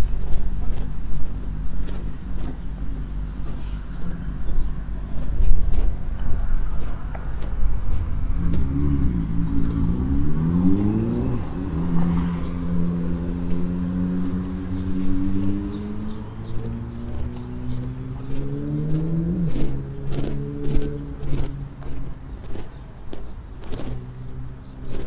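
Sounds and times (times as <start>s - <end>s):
low traffic rumble: 0.0s - 25.0s
vehicle engine revving: 0.0s - 25.0s
small bird trilling: 3.5s - 7.5s, 9.6s - 25.0s.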